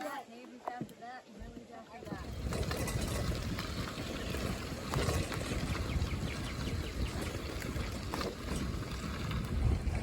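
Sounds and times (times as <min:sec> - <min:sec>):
wind rumbling on microphone: 0:02.0 - 0:10.0
bicycle tyres crunching on gravel: 0:02.2 - 0:10.0.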